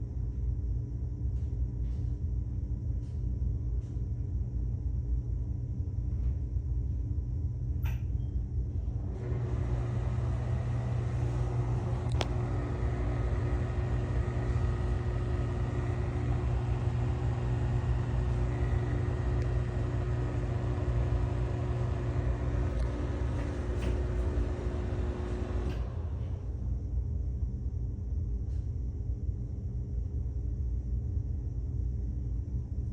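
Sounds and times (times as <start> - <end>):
exhaust fan whirring: 0.0 - 32.9
low hum: 0.0 - 32.9
fan rattle: 8.9 - 26.6
click: 12.0 - 12.4, 19.1 - 19.6, 22.6 - 24.5, 25.2 - 26.0.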